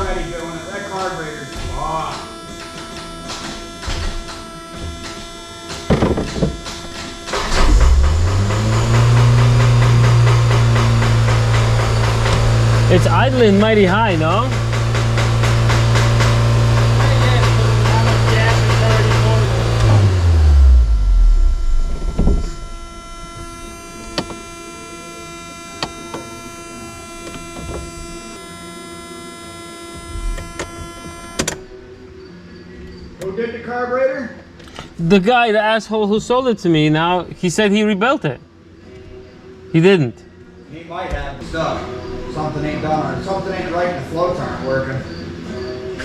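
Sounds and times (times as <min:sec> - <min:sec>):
steady hum: 0:00.0 - 0:32.6
car engine starting and idling: 0:06.6 - 0:28.4.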